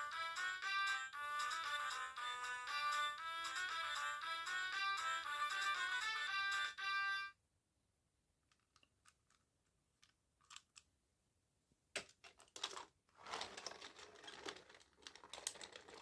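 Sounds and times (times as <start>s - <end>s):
toy electronic melody: 0.0s - 7.3s
plastic clicking and rustling: 8.4s - 10.9s, 12.0s - 16.0s.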